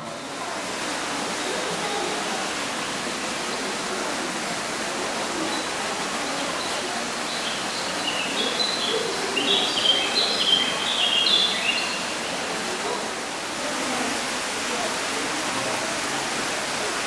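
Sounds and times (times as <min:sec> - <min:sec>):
faint murmur of voices: 0:00.0 - 0:17.0
bird chirping: 0:07.3 - 0:12.2.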